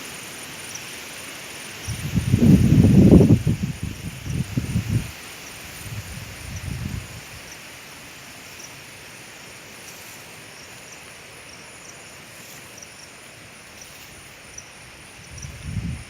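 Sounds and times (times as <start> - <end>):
steady hiss: 0.0 - 16.0
thin continuous high tone: 0.1 - 15.9.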